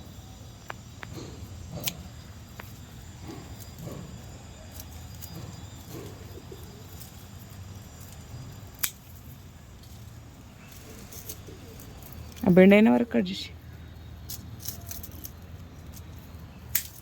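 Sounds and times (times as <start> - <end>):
pigeon cooing: 3.2 - 8.6, 10.5 - 12.4.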